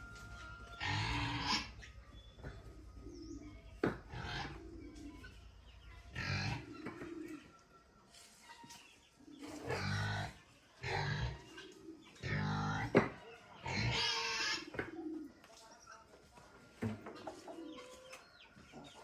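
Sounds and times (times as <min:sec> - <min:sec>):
pigs grunting and squealing: 0:00.8 - 0:01.9, 0:04.0 - 0:05.3, 0:06.0 - 0:07.1, 0:09.5 - 0:14.7.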